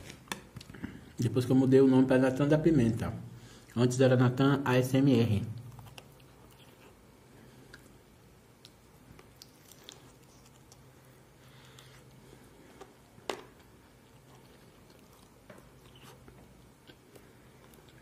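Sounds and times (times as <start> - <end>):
faint low hum: 0.0 - 18.0
wet mouth sounds: 5.6 - 8.0, 14.0 - 18.0
person chewing crispy chicken: 8.6 - 12.2.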